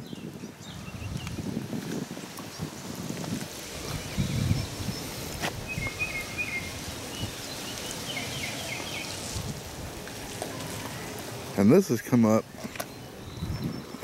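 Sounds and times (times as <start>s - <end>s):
outdoor background noise: 0.0s - 14.0s
small bird chirping: 3.9s - 9.2s, 12.6s - 14.0s.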